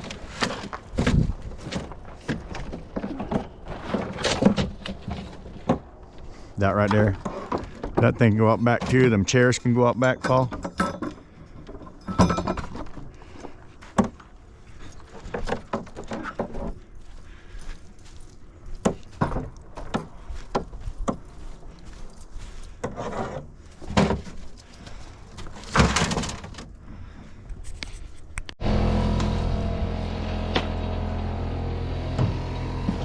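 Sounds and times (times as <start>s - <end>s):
scrap metal clunking and rattling: 0.0s - 17.5s, 18.7s - 27.2s.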